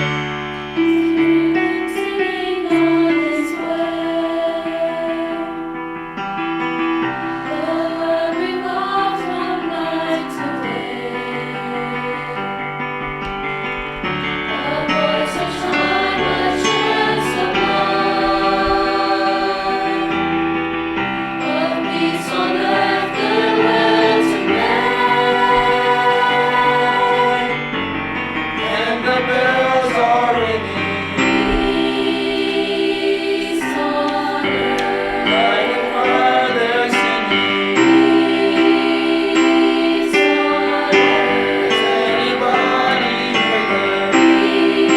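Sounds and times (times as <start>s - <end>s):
choir singing held notes: 0.0s - 44.9s.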